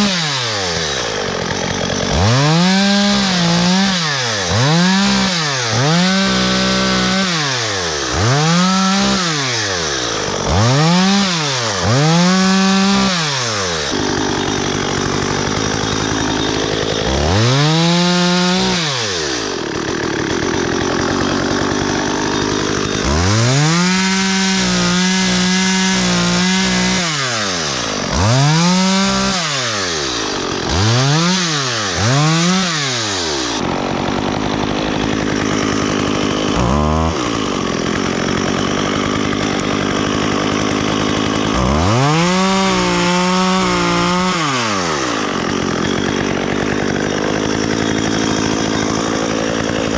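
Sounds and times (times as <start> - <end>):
chainsaw revving: 0.0 - 49.9.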